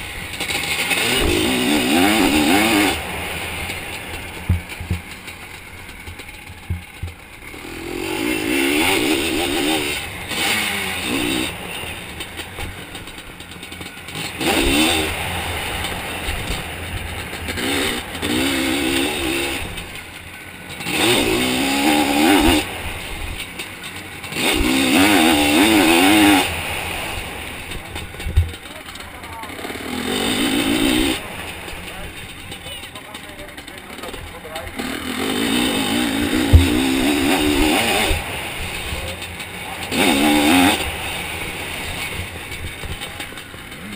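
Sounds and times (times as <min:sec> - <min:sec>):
two-stroke engine revving: 0:00.0 - 0:43.9
low knocks: 0:04.4 - 0:05.1.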